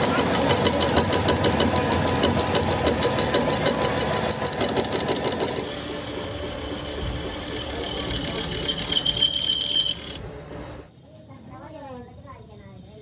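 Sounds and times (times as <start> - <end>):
fast even machine clicking: 0.0 - 10.2
machine humming: 0.0 - 10.9.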